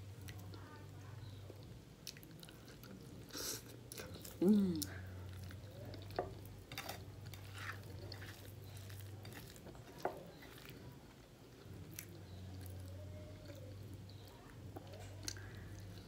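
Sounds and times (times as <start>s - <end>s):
person chewing: 2.0s - 10.9s.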